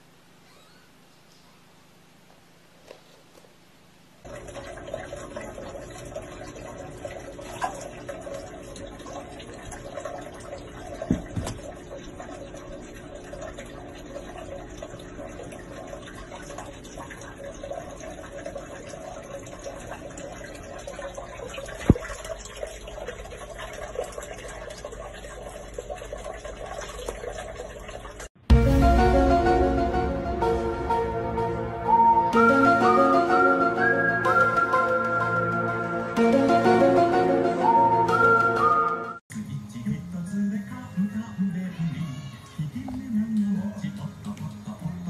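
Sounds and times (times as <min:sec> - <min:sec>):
running water: 0:04.2 - 0:28.4, 0:41.5 - 0:45.0.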